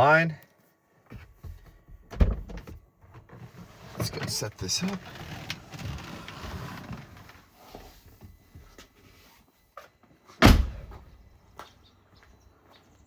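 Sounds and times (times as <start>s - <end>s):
car door slamming: 10.4s - 11.1s.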